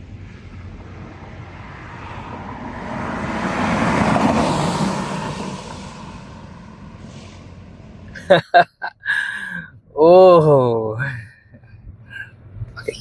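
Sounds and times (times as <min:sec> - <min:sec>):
car passing by: 0:00.2 - 0:08.2.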